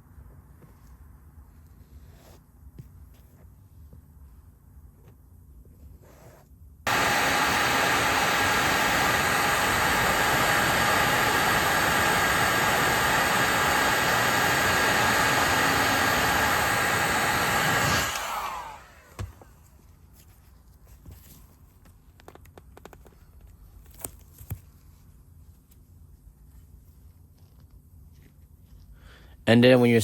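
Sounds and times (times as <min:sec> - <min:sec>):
hot-air dryer blowing: 0:06.9 - 0:19.6.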